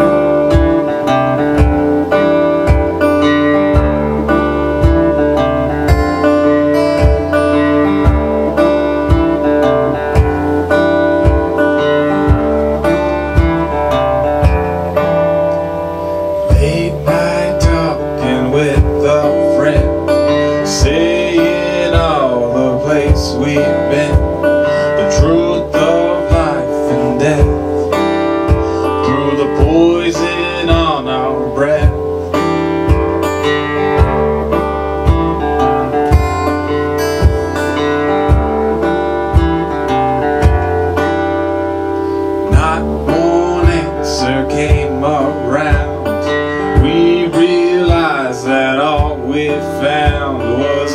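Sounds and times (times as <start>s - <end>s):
acoustic guitar strumming: 0.0s - 50.9s
man singing: 16.3s - 32.6s, 42.4s - 50.9s
kick drum thumping: 36.1s - 36.4s, 37.2s - 37.6s, 38.3s - 38.6s.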